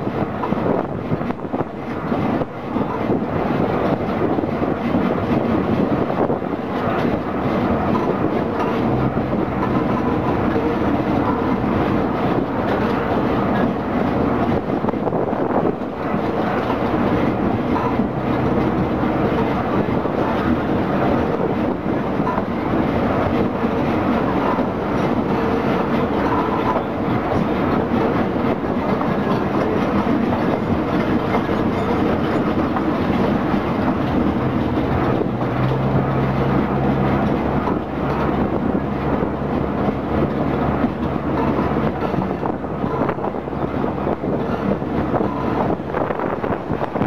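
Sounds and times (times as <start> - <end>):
train engine and wheels rumbling: 0.0 - 47.0.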